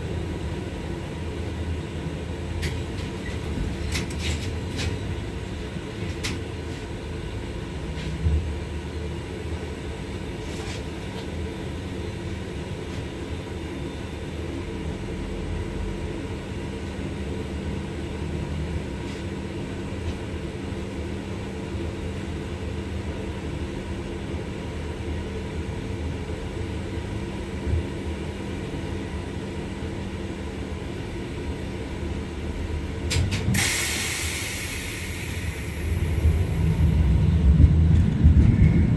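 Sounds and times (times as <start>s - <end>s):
tram rumble and hum: 0.0s - 38.9s
tram knocks and clicks: 2.5s - 6.6s, 32.5s - 34.0s, 35.2s - 38.9s.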